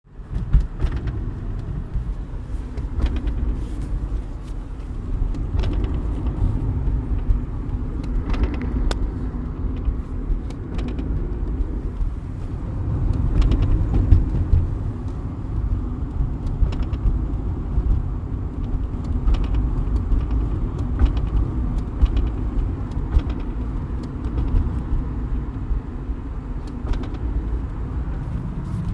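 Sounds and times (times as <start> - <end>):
car engine and road rumble: 0.0 - 28.9
sharp knocks from car: 0.2 - 2.2, 2.8 - 4.0, 5.3 - 7.4, 13.2 - 14.9, 19.2 - 25.3.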